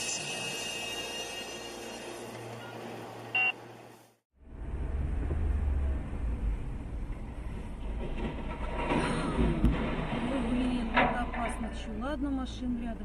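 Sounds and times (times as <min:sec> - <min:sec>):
vehicle rumble on the road: 0:04.4 - 0:10.9.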